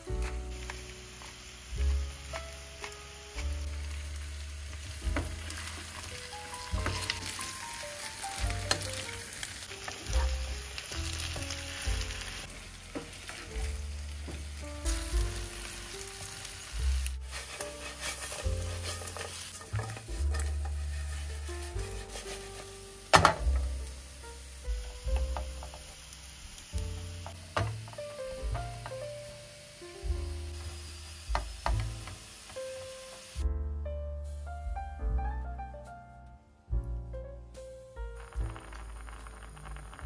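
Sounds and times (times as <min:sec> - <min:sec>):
food frying in oil: 0:00.0 - 0:33.4, 0:38.2 - 0:40.0
background music: 0:00.0 - 0:40.0
spatula scraping pan: 0:17.2 - 0:23.4.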